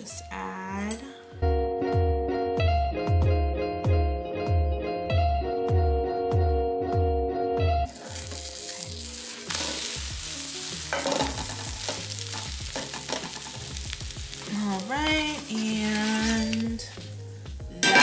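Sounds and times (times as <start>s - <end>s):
background music: 0.0s - 18.0s
omelet sizzling in a pan: 7.9s - 18.0s
spatula scraping a pan: 9.3s - 10.0s.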